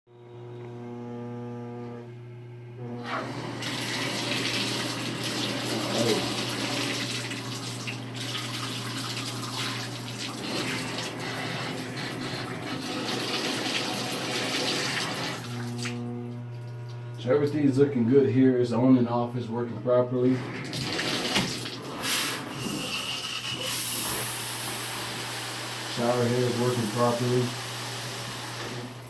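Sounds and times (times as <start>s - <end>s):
water running from faucet: 3.0s - 17.2s, 20.6s - 29.0s
steady hum: 15.4s - 20.7s.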